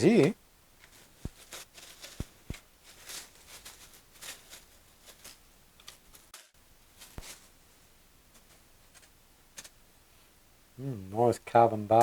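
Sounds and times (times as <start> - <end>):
packaging rustling: 0.8 - 7.6.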